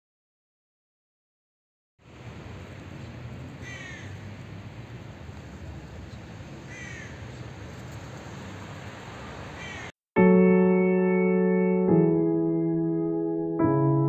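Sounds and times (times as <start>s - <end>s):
bird falling calls: 3.6s - 4.3s, 6.7s - 7.5s, 9.5s - 9.9s.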